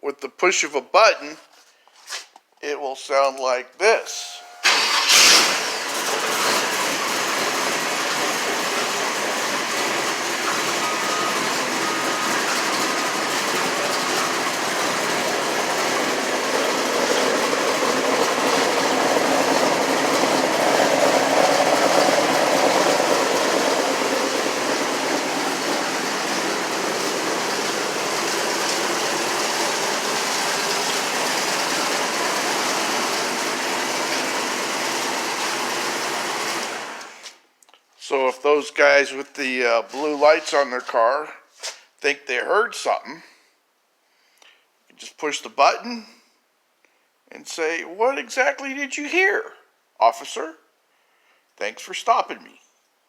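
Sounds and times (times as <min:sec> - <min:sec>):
car engine idling: 0:04.1 - 0:37.0.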